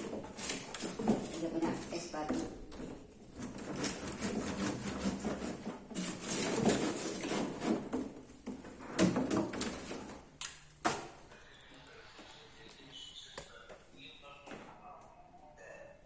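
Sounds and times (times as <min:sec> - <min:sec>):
clattering and scraping in refrigerator: 0:00.0 - 0:10.3.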